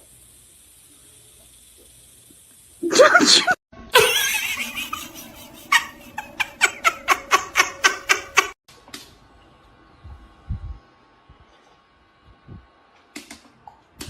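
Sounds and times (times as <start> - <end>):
person laughing hard: 2.9 - 8.6.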